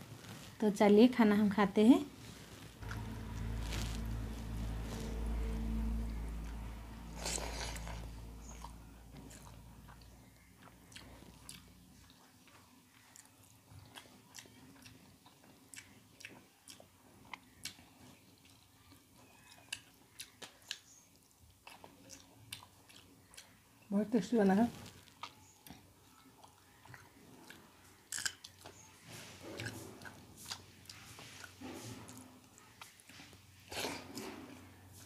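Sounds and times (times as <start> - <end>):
low steady hum: 0.0 - 13.1
chewing clicks and smacks: 8.6 - 23.6, 25.0 - 28.9.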